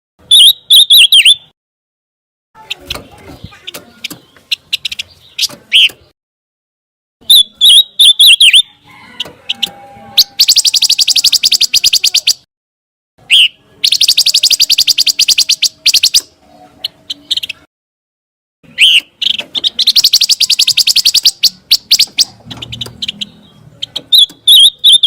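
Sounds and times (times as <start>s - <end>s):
bird singing whistles and trills: 0.3s - 1.5s, 7.2s - 8.7s, 9.5s - 12.4s, 13.2s - 16.3s, 18.7s - 25.0s.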